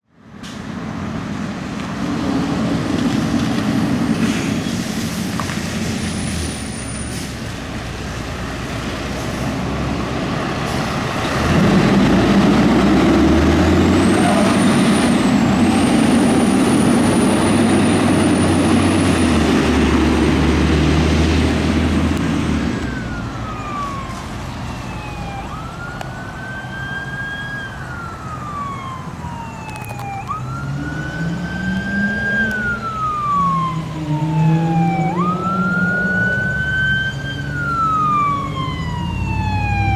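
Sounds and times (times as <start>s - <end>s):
siren wailing: 21.6s - 39.9s.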